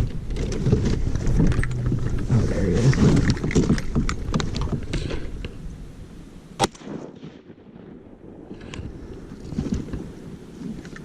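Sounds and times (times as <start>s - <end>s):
rustling: 0.0s - 5.7s
shotgun shot: 6.6s - 8.0s.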